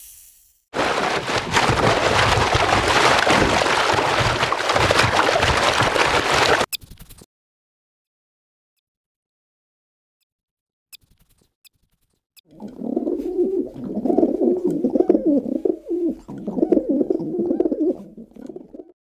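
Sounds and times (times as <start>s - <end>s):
dove cooing: 12.5s - 18.9s.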